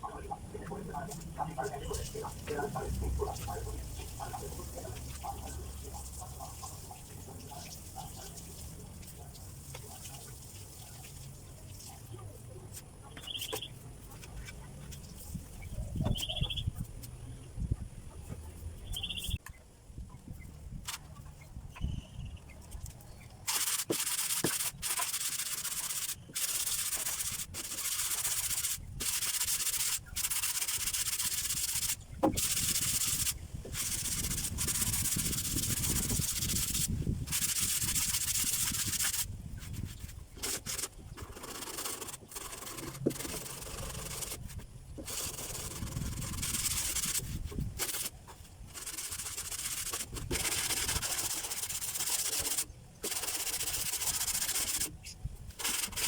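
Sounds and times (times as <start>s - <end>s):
sanding rasp on metal body: 23.4s - 56.0s.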